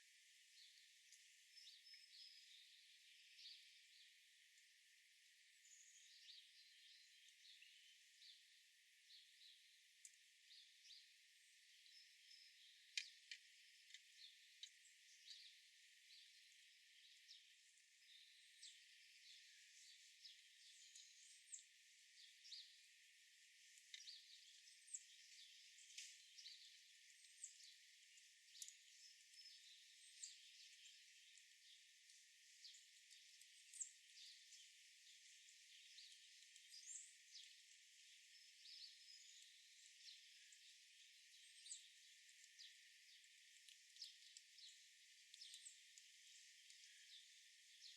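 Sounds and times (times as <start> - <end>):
faint birdsong chirps: 0.0 - 47.9.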